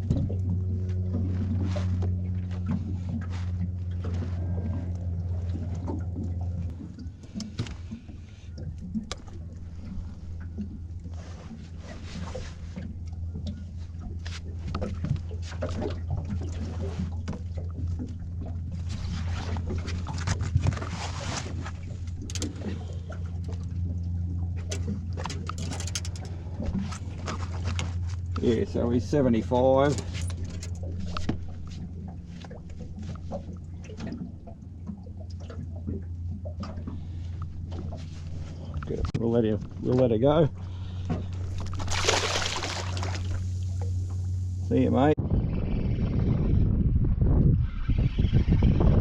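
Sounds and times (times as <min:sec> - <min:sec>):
water dripping and splashing: 0:00.0 - 0:11.2, 0:41.0 - 0:44.6
steady low hum: 0:00.0 - 0:47.5
knocks clicks and rustling: 0:24.6 - 0:26.3.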